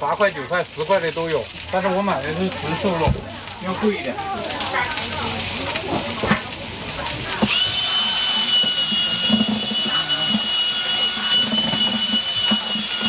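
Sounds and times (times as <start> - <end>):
hiss: 7.0 - 13.0
machine motor whining: 7.4 - 13.0.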